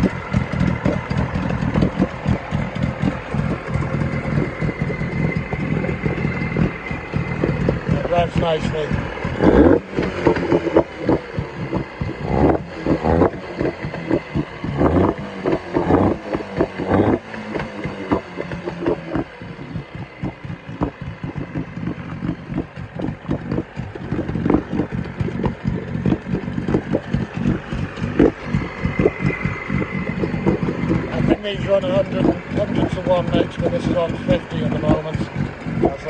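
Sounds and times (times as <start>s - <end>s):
outboard engine running: 0.0s - 36.0s.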